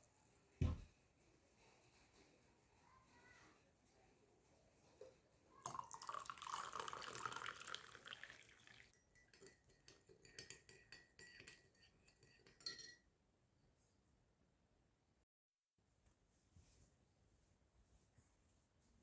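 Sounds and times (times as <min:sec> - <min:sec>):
liquid pouring: 0:05.6 - 0:08.9.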